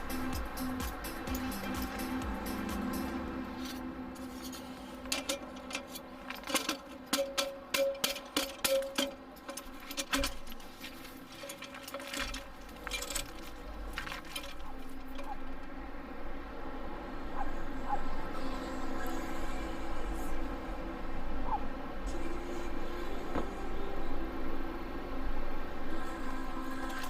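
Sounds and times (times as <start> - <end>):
faint background music: 0.0 - 27.0
small hard objects clinking: 3.6 - 15.7.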